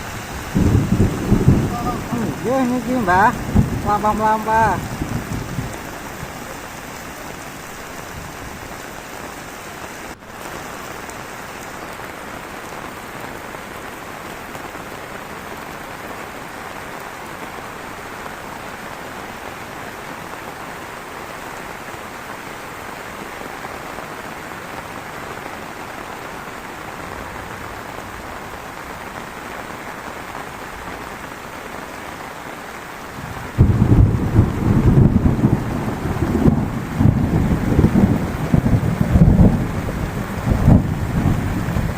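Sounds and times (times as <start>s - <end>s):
heavy rain: 0.0s - 41.9s
loud low rumbling: 0.4s - 7.2s.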